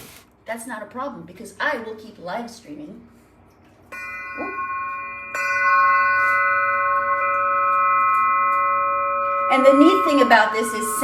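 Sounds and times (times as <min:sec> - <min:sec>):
glass instrument struck and ringing: 0:03.9 - 0:11.0.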